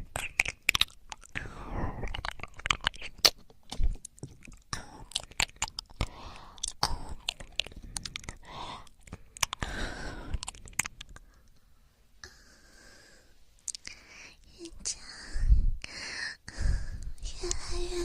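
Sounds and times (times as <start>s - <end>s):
wet clicking and crackling: 0.0s - 1.4s, 2.0s - 9.7s, 10.3s - 11.6s.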